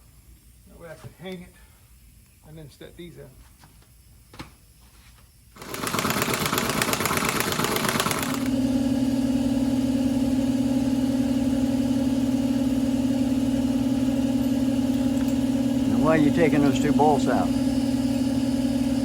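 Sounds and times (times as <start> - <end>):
machine motor rushing and humming: 5.6 - 19.0.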